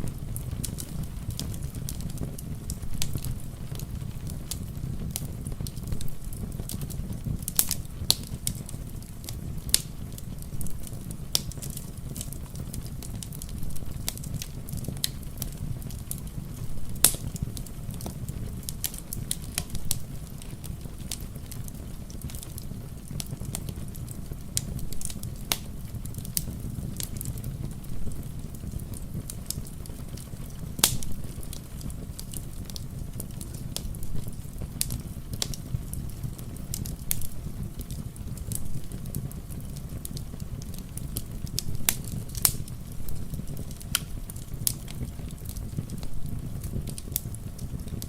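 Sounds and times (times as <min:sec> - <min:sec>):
soft rain patter: 0:00.0 - 0:48.0
wood fire crackling and popping: 0:00.0 - 0:48.0.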